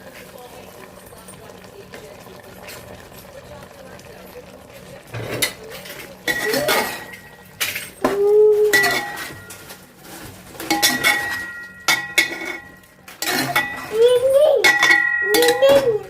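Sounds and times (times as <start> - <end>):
dishes and cutlery clinking: 5.1 - 16.0.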